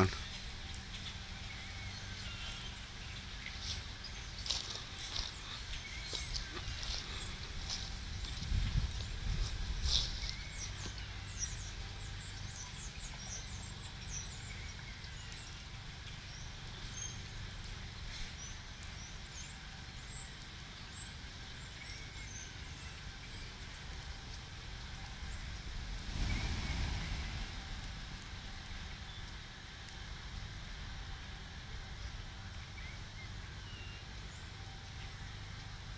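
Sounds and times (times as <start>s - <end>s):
flock of birds chirping: 0.0s - 35.9s
low rumble: 2.6s - 14.8s, 23.9s - 33.1s.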